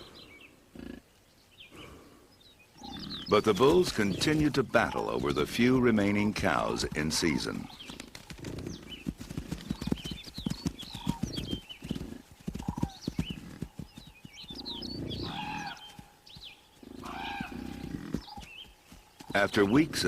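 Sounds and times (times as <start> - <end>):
hooves thudding on ground: 2.8 - 20.0.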